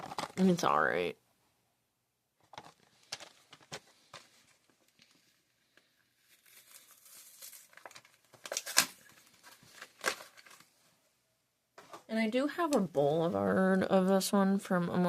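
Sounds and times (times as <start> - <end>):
plastic packaging crinkling: 0.0 - 0.6, 2.4 - 10.8.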